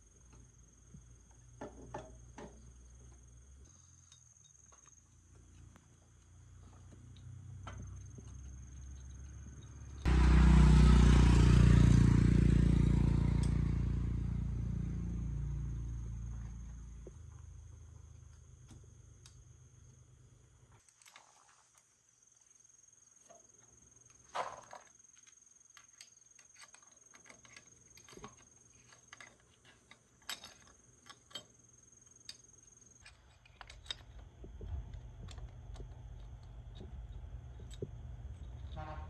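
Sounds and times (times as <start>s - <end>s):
hand tools tapping metal: 25.7s - 39.0s.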